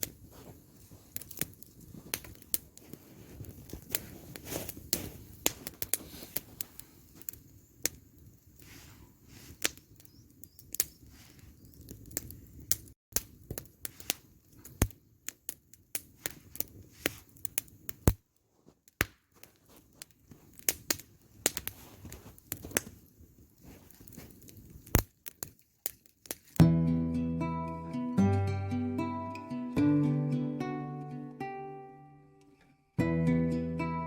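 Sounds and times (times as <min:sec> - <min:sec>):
campfire crackling and popping: 0:00.0 - 0:26.8.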